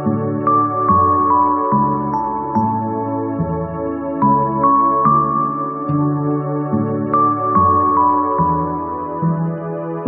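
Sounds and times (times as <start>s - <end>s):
soft slow keyboard music: 0.0s - 10.0s.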